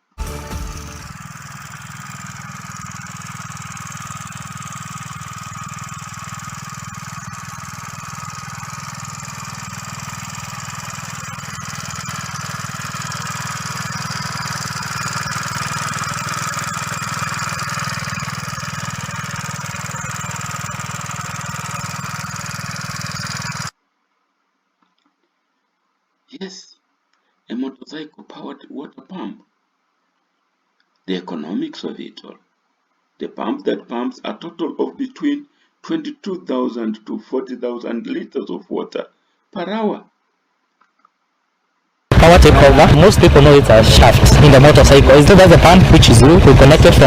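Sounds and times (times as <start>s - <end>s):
motorcycle engine driving water pump: 0.0s - 23.8s, 42.1s - 47.0s.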